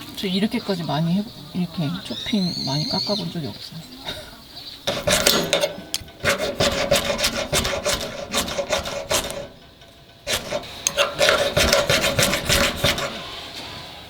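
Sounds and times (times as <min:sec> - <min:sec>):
knife scraping wood: 0:04.8 - 0:13.4.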